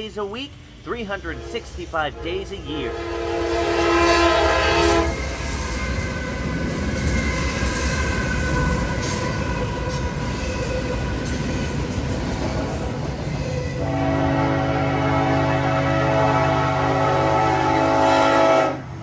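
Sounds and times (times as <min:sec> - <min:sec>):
train running by: 0:00.0 - 0:19.0
train horn chord: 0:01.1 - 0:07.5, 0:13.7 - 0:19.0.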